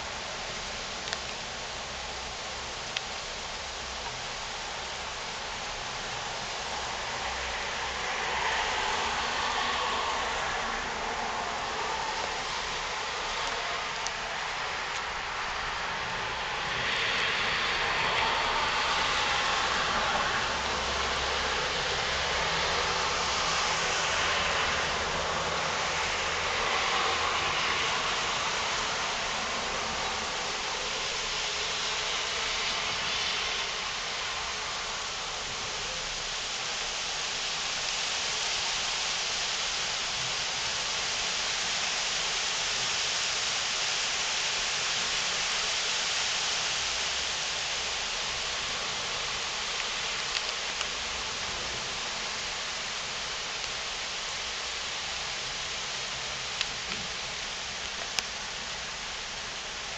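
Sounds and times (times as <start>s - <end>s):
heavy rain pouring: 0.0s - 59.9s
small ticks: 49.8s - 51.0s.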